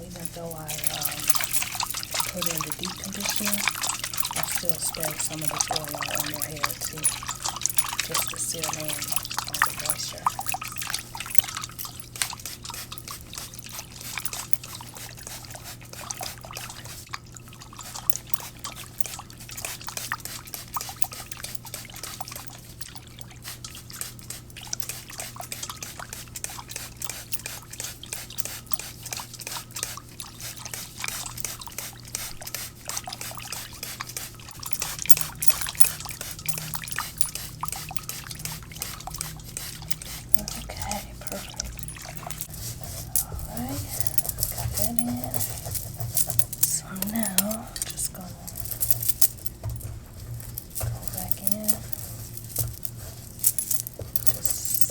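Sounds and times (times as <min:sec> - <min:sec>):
hair crackling under hands: 0:00.0 - 0:15.3.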